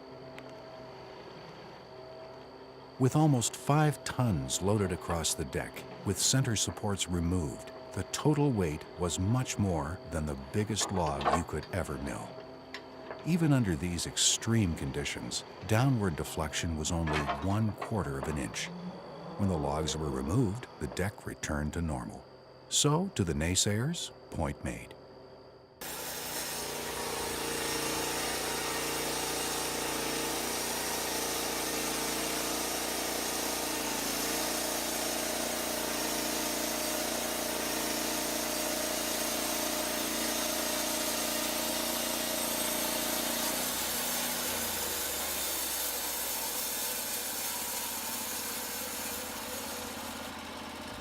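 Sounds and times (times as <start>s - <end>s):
sawmill engine drone: 0.0s - 25.1s, 25.8s - 51.0s
band blade cutting log: 25.8s - 51.0s.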